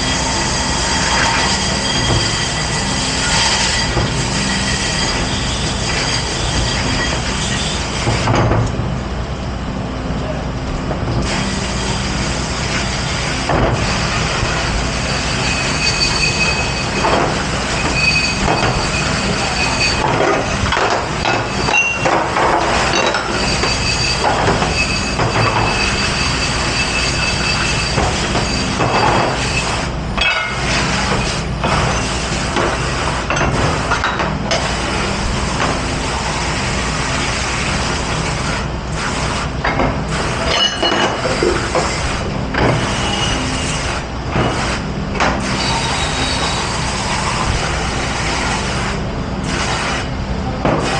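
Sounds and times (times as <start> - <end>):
high squealing tone: 15.0 - 22.1, 22.9 - 29.8, 45.5 - 47.3
dishes and metal clattering: 30.2 - 32.0, 40.5 - 41.7.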